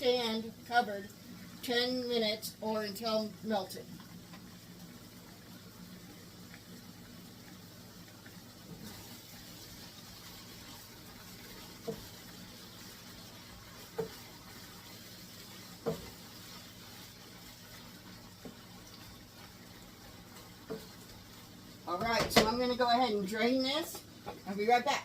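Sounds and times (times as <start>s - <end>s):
beef sizzling in a frying pan: 0.0s - 25.0s
stirring knocks: 10.7s - 22.8s.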